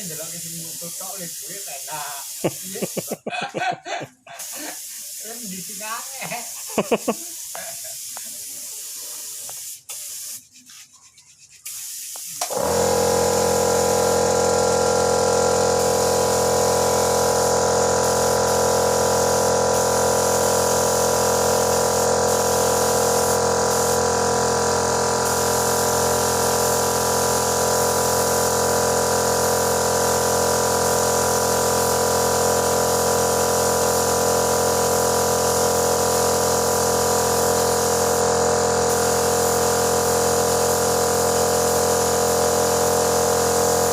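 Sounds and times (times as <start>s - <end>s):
small electric motor humming: 12.4s - 43.9s.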